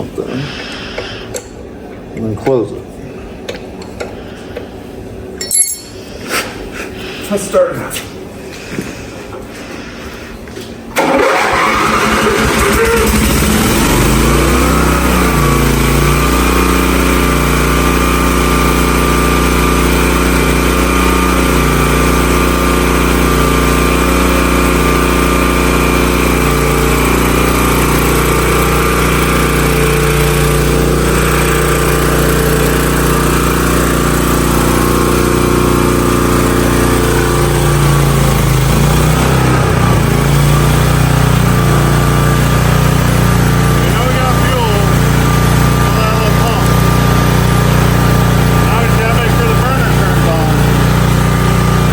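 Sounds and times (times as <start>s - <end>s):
pressure washer engine running: 10.9s - 51.9s.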